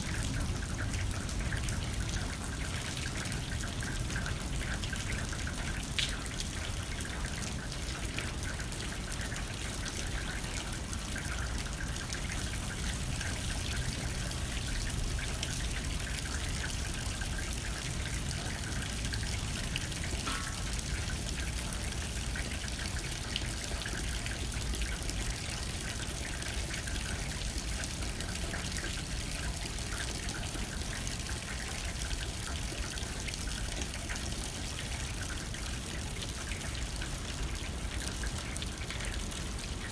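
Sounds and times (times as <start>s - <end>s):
low rumble of wind: 0.0s - 29.6s
rain pattering on a window: 0.0s - 39.9s.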